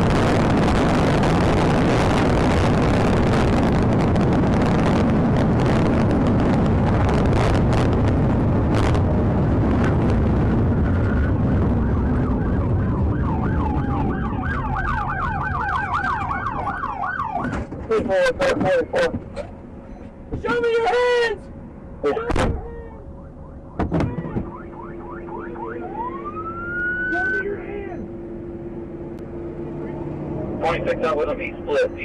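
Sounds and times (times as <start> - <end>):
road and wind noise: 0.0 - 32.0
police siren yelping: 11.0 - 17.7, 22.0 - 28.2.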